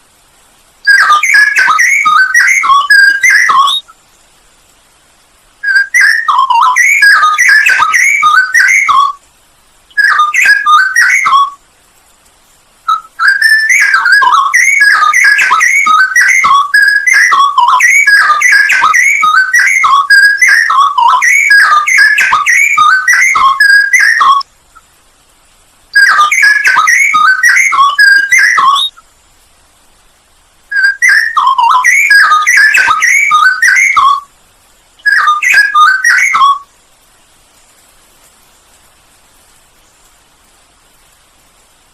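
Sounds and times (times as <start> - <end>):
bird singing warbling whistles: 0.8 - 4.0, 5.6 - 9.2, 9.9 - 11.6, 12.9 - 24.5, 25.9 - 29.0, 30.7 - 34.3, 35.0 - 36.7.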